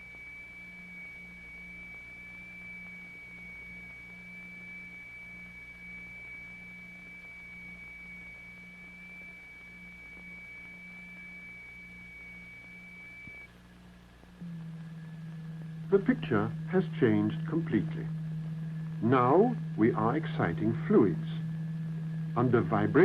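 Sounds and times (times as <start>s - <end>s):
high-pitched tone: 14.4s - 23.0s
throbbing low electronic tone: 14.4s - 23.0s.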